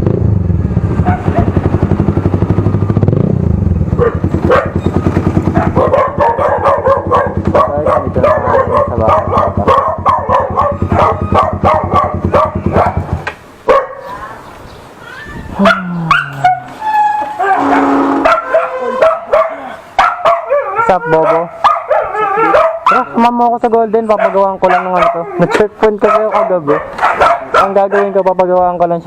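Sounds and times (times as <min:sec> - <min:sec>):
motorcycle with loud exhaust: 0:00.0 - 0:13.4, 0:17.5 - 0:19.3
dog barking rapidly: 0:01.0 - 0:01.7, 0:03.9 - 0:14.4, 0:15.6 - 0:23.4, 0:24.0 - 0:28.5.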